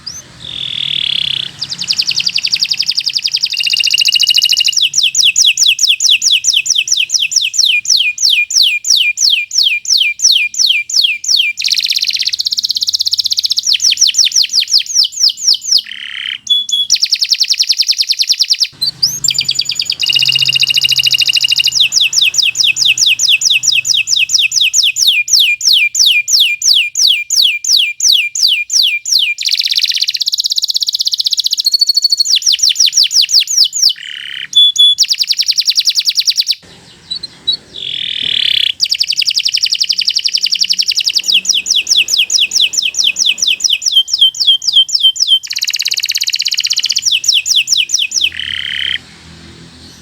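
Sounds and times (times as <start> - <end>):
canary singing: 0.0 - 50.0.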